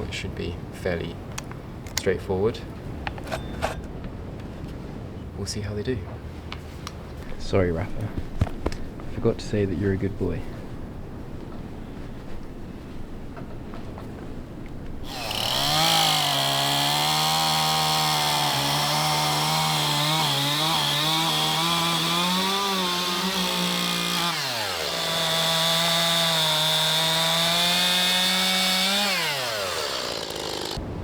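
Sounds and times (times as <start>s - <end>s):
chainsaw cutting wood: 15.0s - 30.8s.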